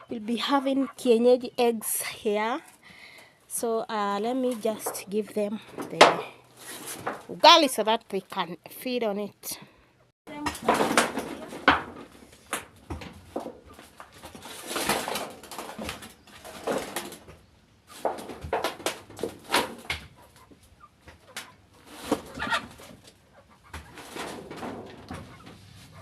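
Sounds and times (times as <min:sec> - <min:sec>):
chickens clucking softly: 0:20.1 - 0:24.2.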